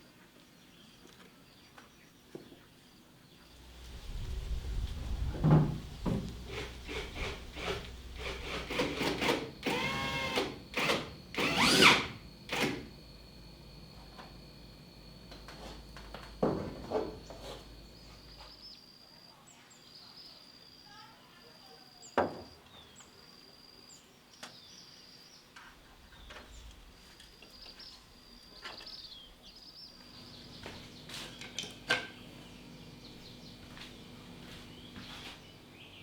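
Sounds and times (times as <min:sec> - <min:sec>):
high insect buzz: 0:03.5 - 0:13.1.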